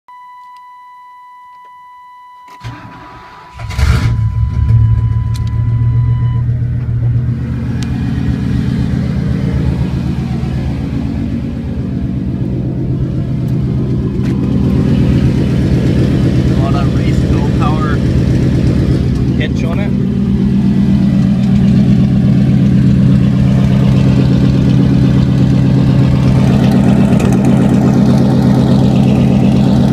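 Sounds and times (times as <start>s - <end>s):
high electronic warning tone: 3.5s - 6.6s
loud engine idling: 3.5s - 29.9s.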